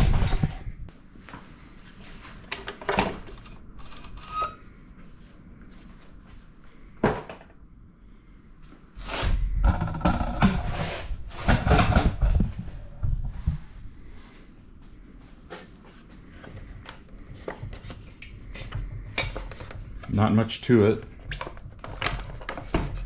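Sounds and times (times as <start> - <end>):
parts clattering and scraping: 9.0 - 13.6, 15.5 - 23.0.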